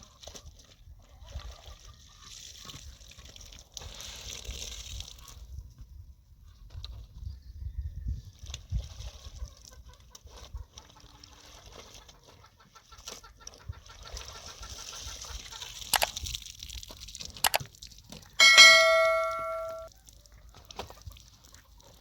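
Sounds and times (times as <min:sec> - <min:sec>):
metal object ringing like a bell: 0:18.4 - 0:19.9.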